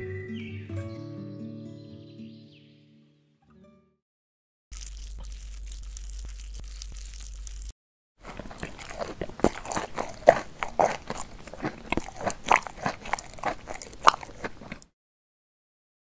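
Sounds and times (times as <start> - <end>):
chewing and crunching food: 4.7 - 15.0.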